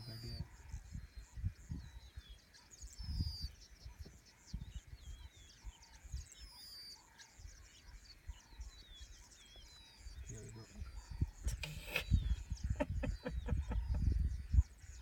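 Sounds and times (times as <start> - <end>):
birds chirping and whistling: 0.0 - 15.0.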